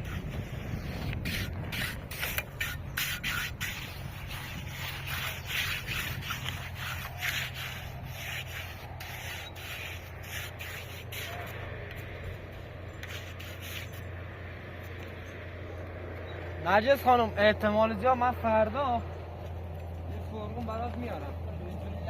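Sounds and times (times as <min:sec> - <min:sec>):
rough scraping strokes: 0:00.0 - 0:15.6
steady low hum: 0:00.0 - 0:22.0.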